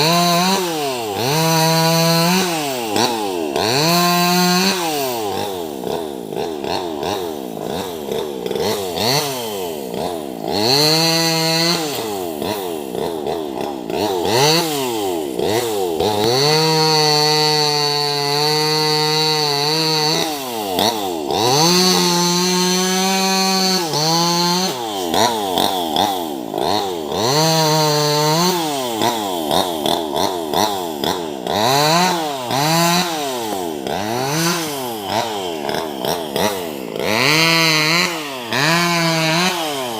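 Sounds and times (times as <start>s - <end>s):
chainsaw cutting branches: 0.0s - 39.9s.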